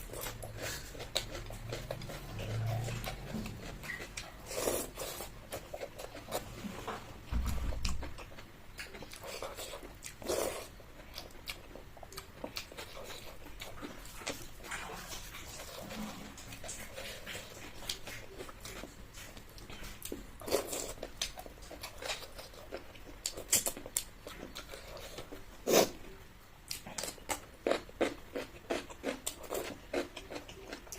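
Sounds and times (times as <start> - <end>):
chewing and mouth smacks: 0.1 - 6.4, 7.8 - 25.4.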